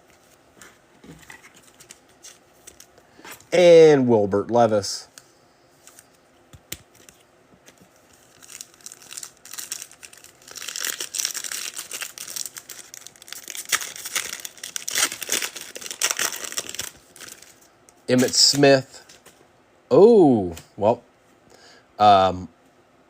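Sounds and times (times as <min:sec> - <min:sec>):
card pack wrapper tearing and crinkling: 0:06.9 - 0:18.6.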